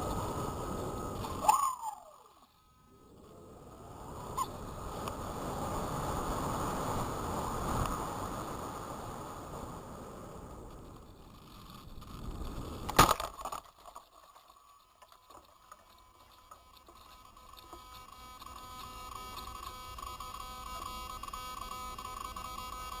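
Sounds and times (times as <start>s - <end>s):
high-pitched hum: 0.0s - 23.0s
model plane crash impact: 12.8s - 14.4s.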